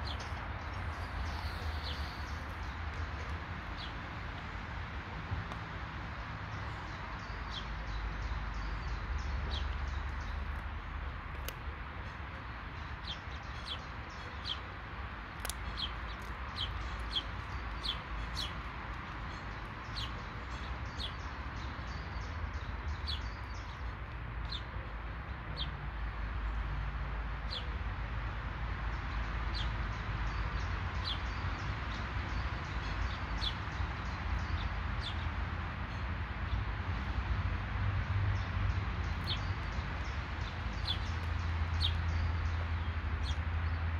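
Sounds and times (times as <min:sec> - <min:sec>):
birds chirping: 0:00.0 - 0:04.5, 0:06.4 - 0:25.8, 0:38.4 - 0:43.8
steady outdoor hiss: 0:00.0 - 0:43.9.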